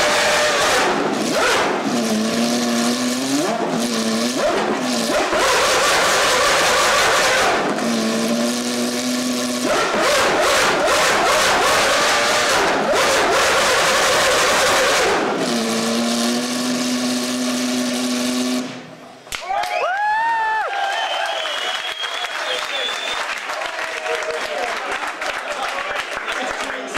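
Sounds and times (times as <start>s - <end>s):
racing car engine revving: 0.0s - 19.1s.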